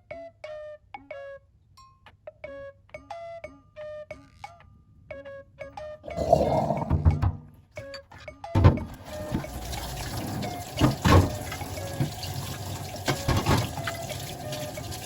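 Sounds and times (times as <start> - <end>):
splashes or knocks: 8.6 - 12.4, 13.0 - 14.0
water running in a sink: 8.6 - 15.0.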